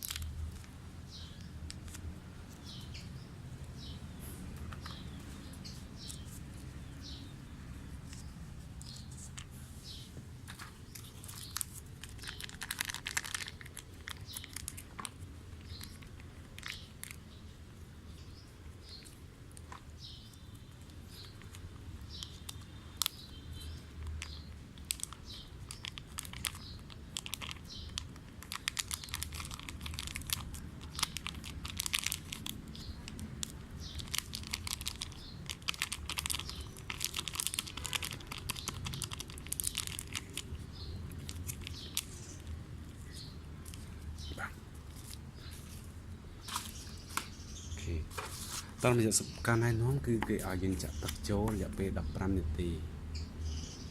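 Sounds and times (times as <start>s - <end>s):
plastic sachets tearing: 0.0s - 0.7s, 10.6s - 17.2s, 19.5s - 42.5s
plastic sachets crinkling: 0.0s - 2.8s, 10.4s - 17.4s, 18.9s - 44.2s.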